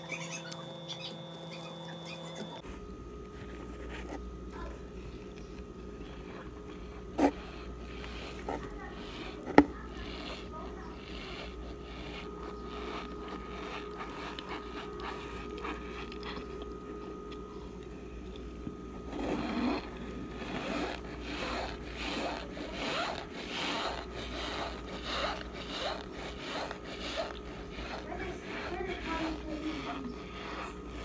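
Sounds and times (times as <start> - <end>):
squeaky crunchy chewing: 0.0 - 2.6, 4.5 - 31.0
faint scraping: 19.0 - 31.0.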